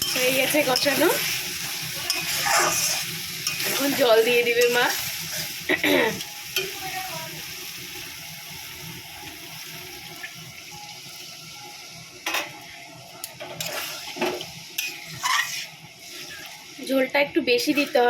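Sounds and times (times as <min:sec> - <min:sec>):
water hissing in hot pan: 0:00.0 - 0:18.0.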